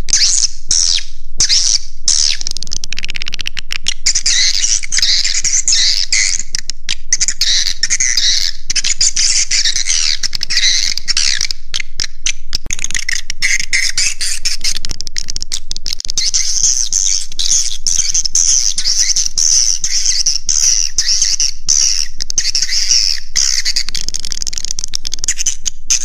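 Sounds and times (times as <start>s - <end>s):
swiftlets twittering chirps: 16.1s - 24.2s
rapid clicking: 23.4s - 26.0s.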